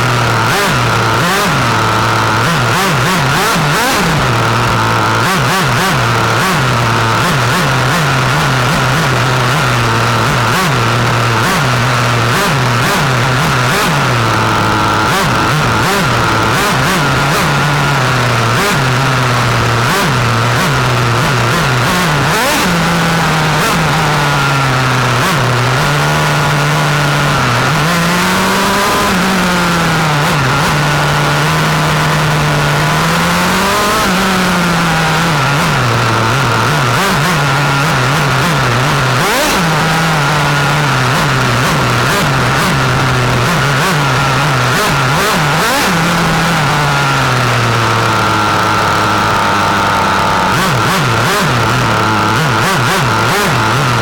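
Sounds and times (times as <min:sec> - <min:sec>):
steady high whine: 0:00.0 - 0:25.7
rc car engine revving: 0:00.0 - 0:54.0.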